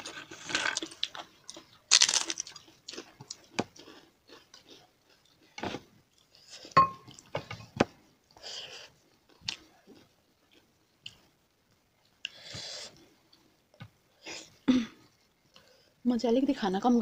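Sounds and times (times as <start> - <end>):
crunching and chewing food: 0.0 - 7.3, 8.3 - 11.4.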